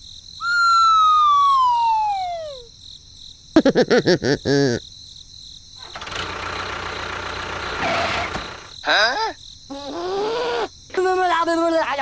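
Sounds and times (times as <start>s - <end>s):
warbling voice-like chirps: 0.4s - 2.7s
whistle sliding down in pitch: 0.4s - 2.7s.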